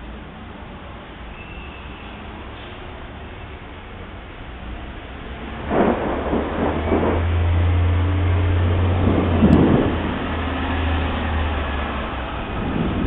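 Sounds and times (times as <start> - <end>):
thunder rolling: 5.2 - 13.0.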